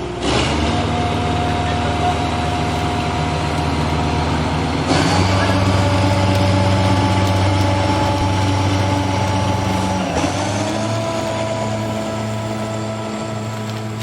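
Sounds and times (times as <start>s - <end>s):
model locomotive engine sound: 0.0s - 14.0s.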